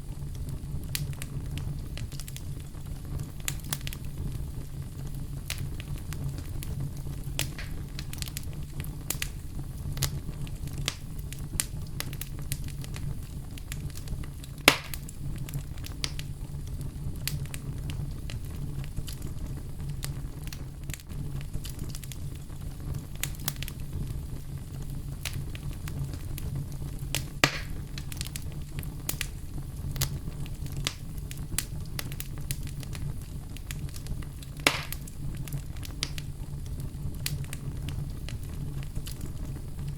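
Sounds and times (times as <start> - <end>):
burning wood crackling: 0.0 - 39.9
campfire flames rumbling: 0.0 - 39.9.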